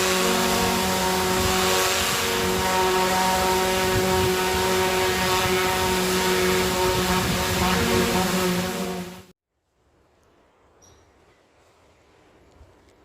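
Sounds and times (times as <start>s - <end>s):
engine humming steadily: 0.0s - 9.3s.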